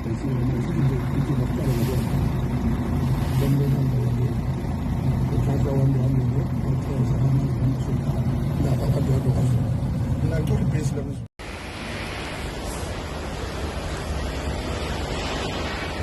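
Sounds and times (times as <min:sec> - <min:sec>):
vehicle engine idling: 0:00.0 - 0:11.2.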